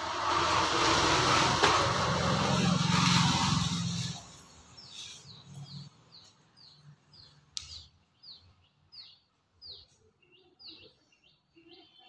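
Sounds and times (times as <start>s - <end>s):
bird chirping: 3.9s - 12.0s.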